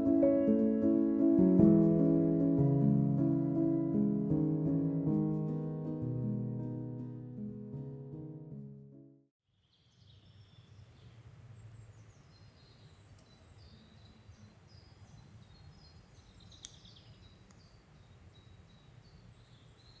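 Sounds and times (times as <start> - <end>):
small birds chirping: 9.6 - 20.0
sharp click: 16.6 - 16.9.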